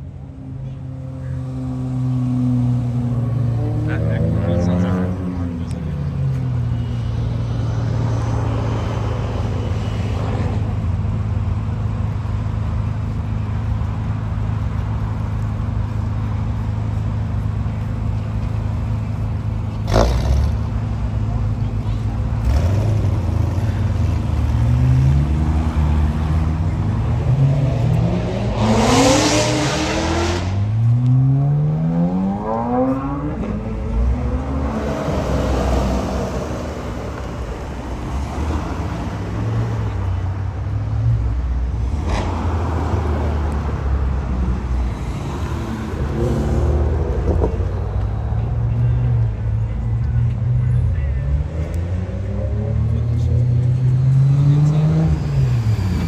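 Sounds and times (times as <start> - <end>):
low engine rumble: 0.0 - 29.8
car engine accelerating hard: 0.0 - 56.0.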